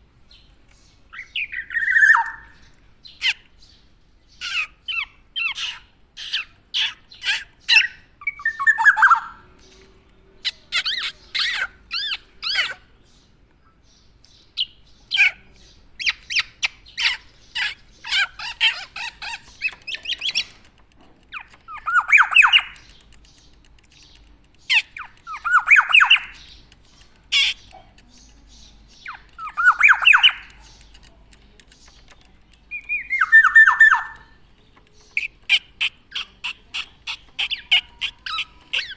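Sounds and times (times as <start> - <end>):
oriole calling: 1.1 - 2.6, 32.7 - 34.4.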